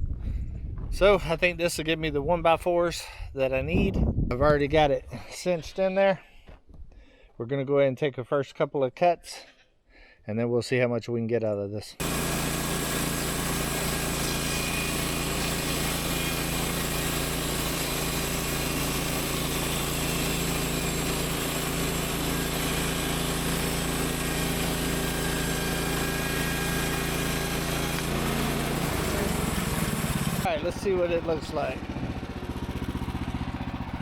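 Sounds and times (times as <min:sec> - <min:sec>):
saw blade cutting log: 0:12.0 - 0:34.0
small gas engine running: 0:12.0 - 0:34.0.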